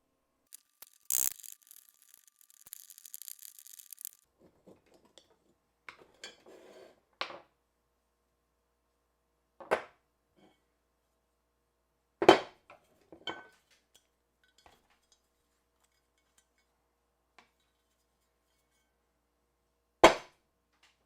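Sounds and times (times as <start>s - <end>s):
scrubbing on small part: 0.5s - 4.2s.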